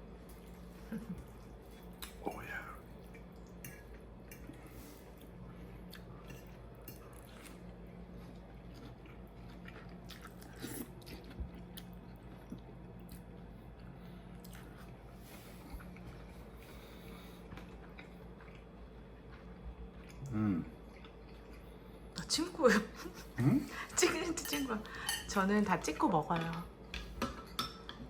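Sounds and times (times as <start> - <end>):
faint low hum: 0.0 - 28.0
chewing and biting: 3.0 - 15.0, 15.6 - 21.8.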